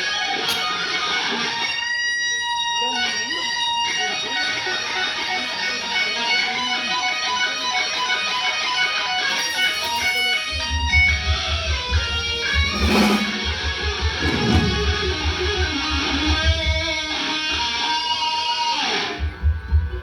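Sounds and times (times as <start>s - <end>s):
electric guitar playing: 0.0s - 20.0s
drum or cymbal hit: 12.0s - 16.6s.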